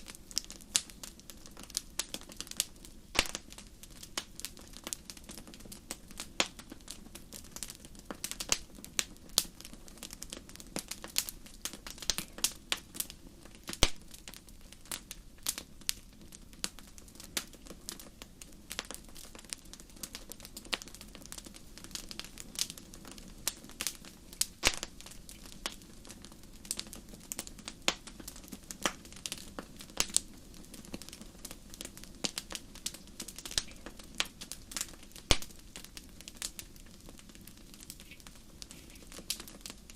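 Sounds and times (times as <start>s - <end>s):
campfire crackling: 0.0s - 39.9s
low rush of flames: 0.0s - 39.9s.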